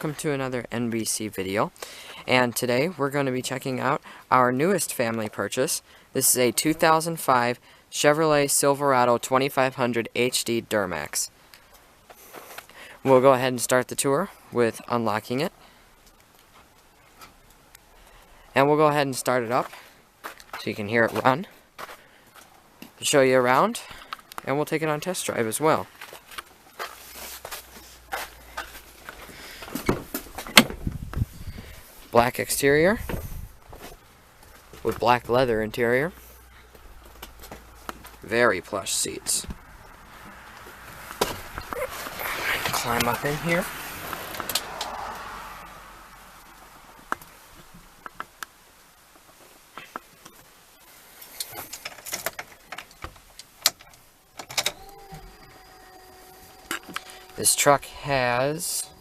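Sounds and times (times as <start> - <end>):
footsteps: 11.6 - 12.8, 19.5 - 24.5, 25.8 - 32.2, 36.1 - 38.3
handling knocks and clicks: 51.4 - 55.3.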